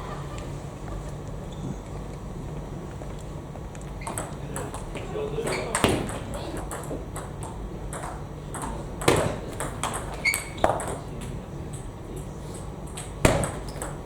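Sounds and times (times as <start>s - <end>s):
table tennis ball clicking: 3.8s - 14.0s.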